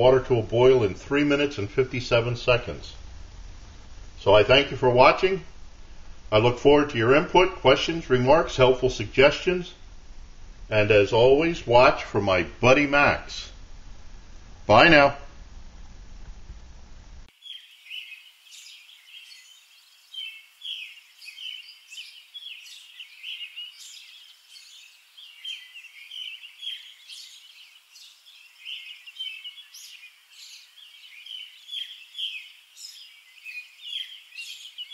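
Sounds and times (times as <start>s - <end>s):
small birds chirping and singing: 17.3s - 34.9s.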